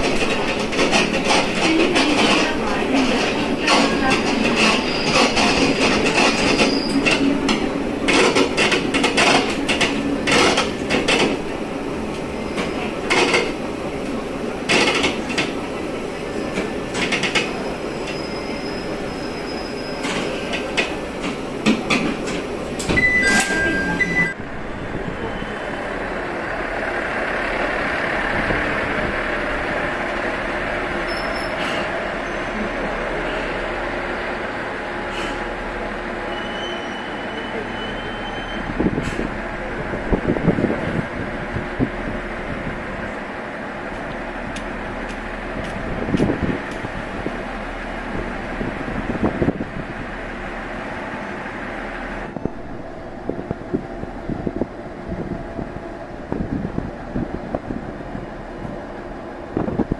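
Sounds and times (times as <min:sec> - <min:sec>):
wheels clacking over rail joints: 0:00.0 - 0:24.4
railcar running rumble: 0:00.0 - 0:59.9
standing railcar rumble: 0:00.0 - 0:59.9
short high tones: 0:23.0 - 0:24.5.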